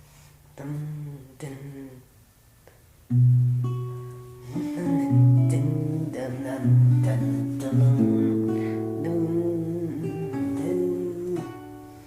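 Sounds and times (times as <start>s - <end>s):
plucked guitar-like strings: 3.1s - 11.8s.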